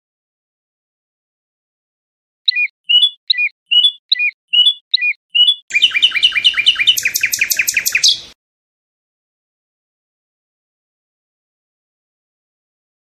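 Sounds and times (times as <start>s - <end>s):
fast bird trill: 2.5s - 8.4s
songbird singing: 2.5s - 8.4s.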